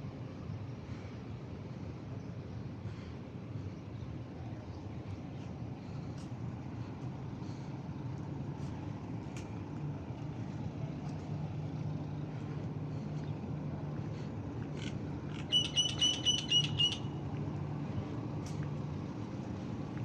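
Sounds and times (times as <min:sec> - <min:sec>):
low outdoor hum: 0:00.0 - 0:20.0
high chirps: 0:15.4 - 0:17.2.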